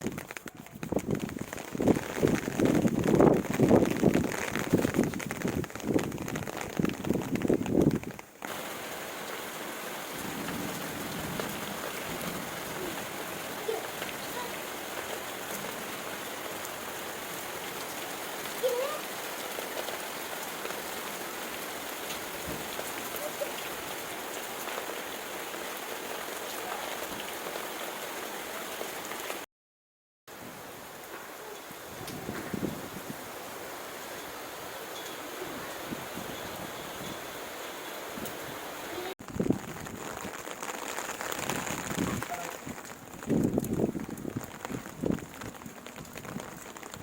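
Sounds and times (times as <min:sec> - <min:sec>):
heavy rain falling: 0:00.0 - 0:29.5, 0:30.3 - 0:47.0.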